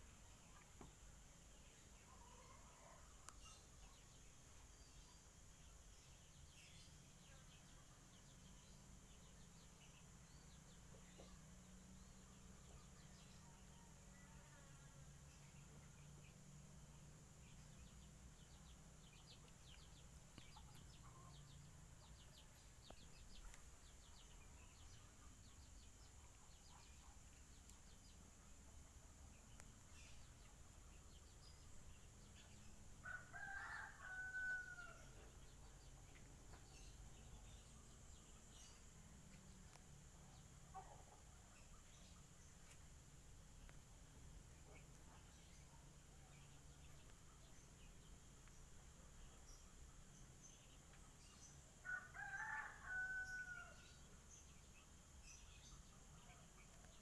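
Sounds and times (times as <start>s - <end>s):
rooster crowing: 33.0s - 35.1s, 51.8s - 53.8s.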